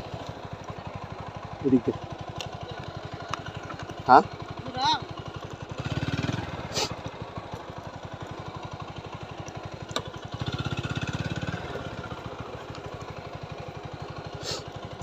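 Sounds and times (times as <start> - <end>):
motorcycle engine thudding: 8.6 - 12.6.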